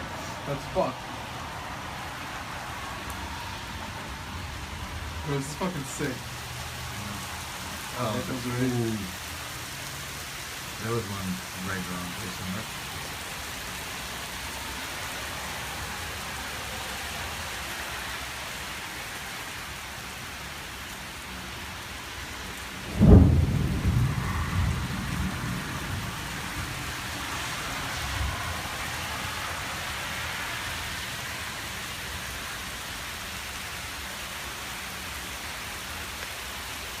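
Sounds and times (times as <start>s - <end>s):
heavy rain: 0.0s - 37.0s
thunderclap rolling into rumbling: 22.9s - 26.9s.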